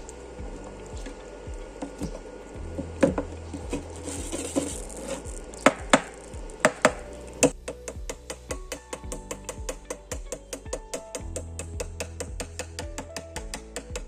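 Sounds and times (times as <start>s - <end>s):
low hum: 0.0s - 14.0s
sharp knocks and taps: 4.6s - 14.0s.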